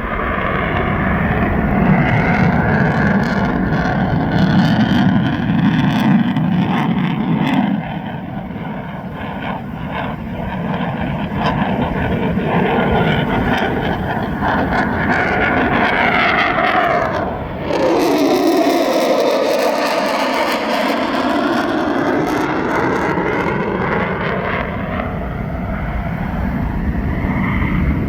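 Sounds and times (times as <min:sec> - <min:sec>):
jet engine roaring: 0:00.0 - 0:28.0
rising whine: 0:12.7 - 0:28.0.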